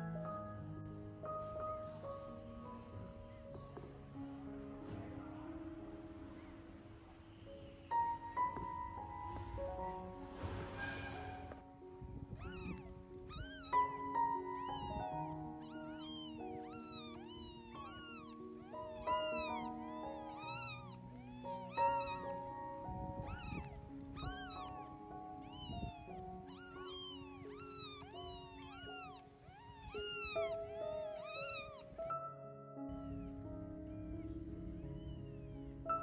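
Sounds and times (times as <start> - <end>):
kittens mewing: 12.0 - 32.0, 34.3 - 35.8.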